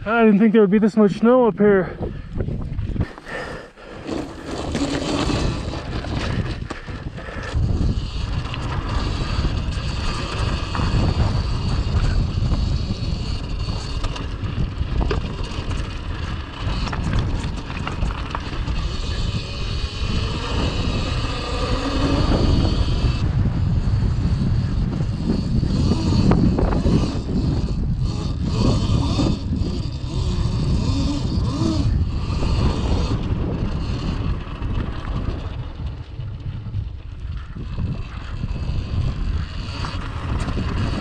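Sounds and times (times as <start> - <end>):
wind buffeting microphone: 0.0 - 41.0
electric motor whine: 3.1 - 36.5.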